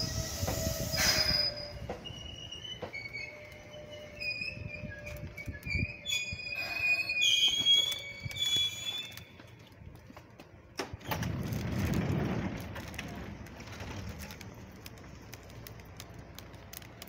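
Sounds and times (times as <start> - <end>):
train wheels squealing on rails: 0.0 - 9.7
low rumbling noise: 9.0 - 17.0.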